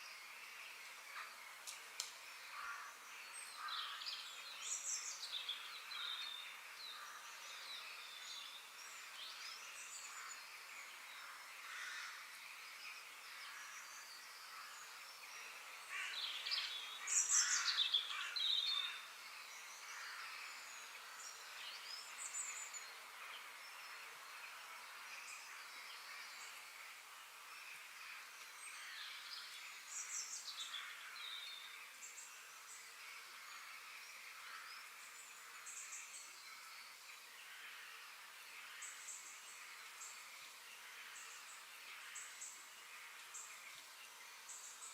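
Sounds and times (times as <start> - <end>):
steady background hiss: 0.0 - 44.9
birds chirping and calling: 13.4 - 22.9.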